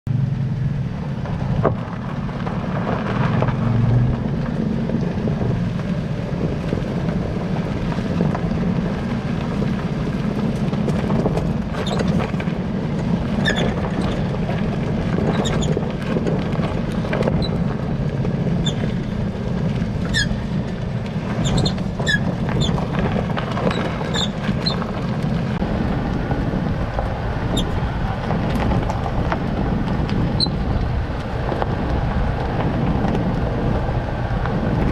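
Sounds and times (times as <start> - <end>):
vehicle engine rumble: 0.0 - 34.9
suspension squeaks: 11.0 - 25.6, 27.4 - 29.2, 30.0 - 30.9.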